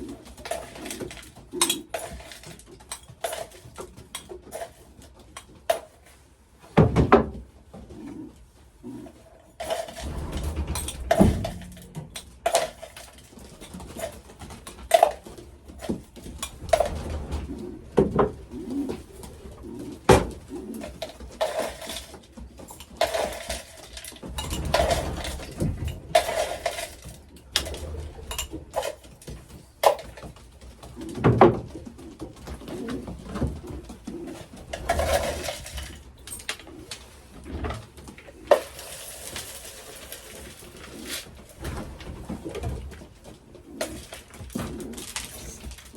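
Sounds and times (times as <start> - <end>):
sharp clicks and clatters: 9.6 - 37.1
pigeons cooing: 16.3 - 22.0, 40.8 - 45.9.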